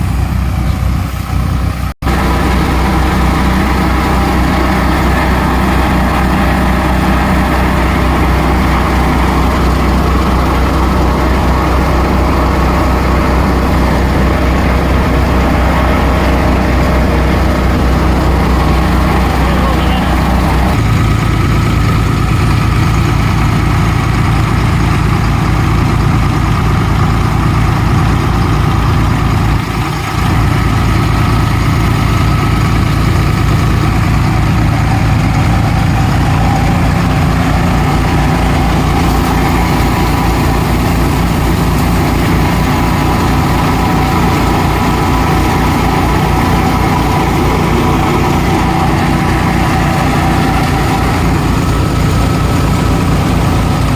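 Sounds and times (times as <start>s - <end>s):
thresher working: 0.0s - 53.9s
tractor diesel engine running: 0.0s - 53.9s.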